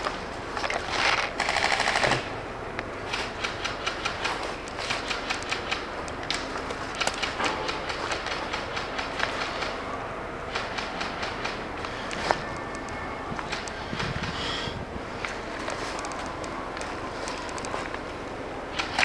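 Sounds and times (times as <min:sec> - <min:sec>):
airsoft guns firing full auto: 0:01.0 - 0:02.3.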